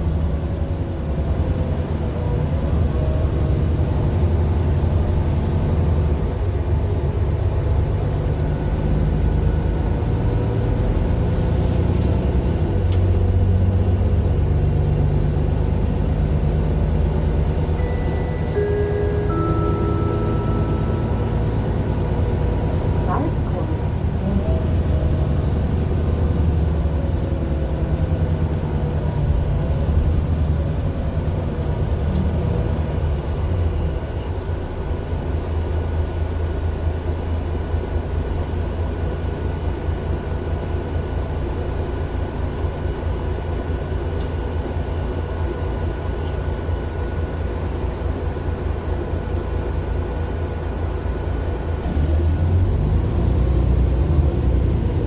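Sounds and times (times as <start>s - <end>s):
bus diesel engine rumbling: 0.0s - 55.0s
faint falling tone: 17.8s - 22.2s.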